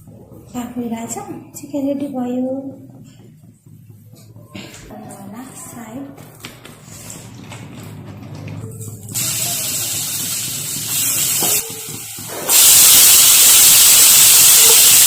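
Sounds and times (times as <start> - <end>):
food sizzling on stove: 9.2 - 15.0.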